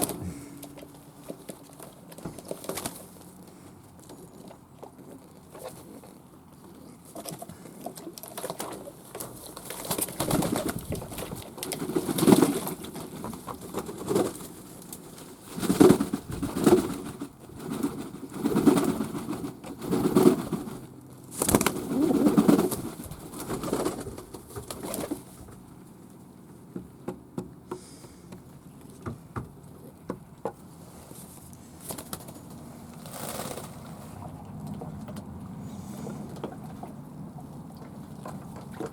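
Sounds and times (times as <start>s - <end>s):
pigeons cooing: 21.5s - 23.7s.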